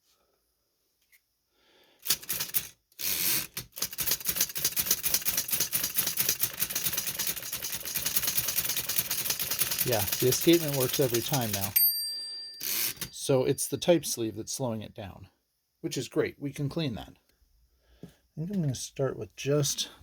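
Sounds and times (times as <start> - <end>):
typewriter clicking: 2.0 - 11.8.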